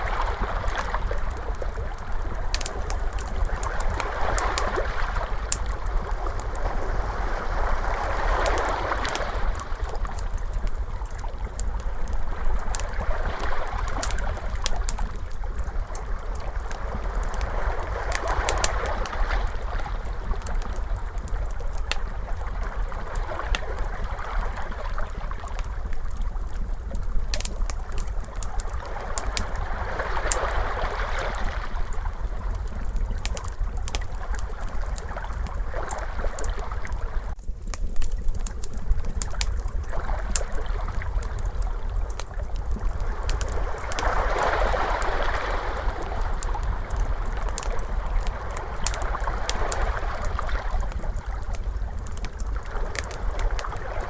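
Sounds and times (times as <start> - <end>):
ocean waves washing: 0.0 - 10.0, 42.9 - 51.2
fire crackling and popping: 0.0 - 54.0.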